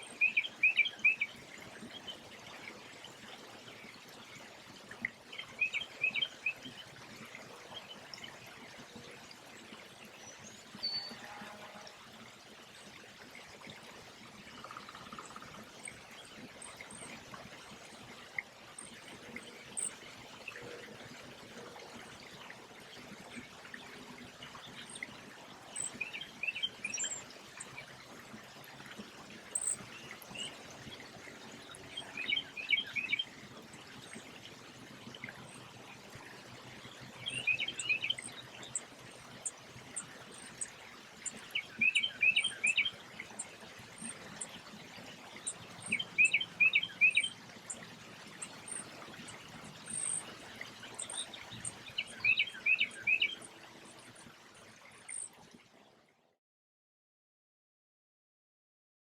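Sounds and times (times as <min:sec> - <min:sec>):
songbird chirping: 0:00.0 - 0:02.2, 0:05.3 - 0:06.9, 0:24.5 - 0:27.9, 0:29.5 - 0:33.4, 0:36.9 - 0:53.5
faint high ticking calls: 0:00.0 - 0:02.3, 0:04.9 - 0:08.3, 0:14.4 - 0:20.8, 0:24.4 - 0:55.4.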